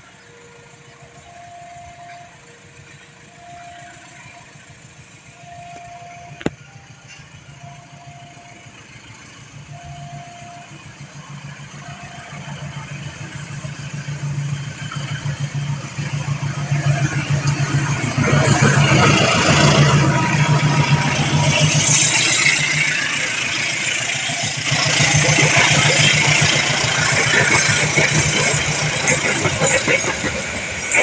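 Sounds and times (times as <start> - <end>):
approaching train rumble: 0.0 - 31.0.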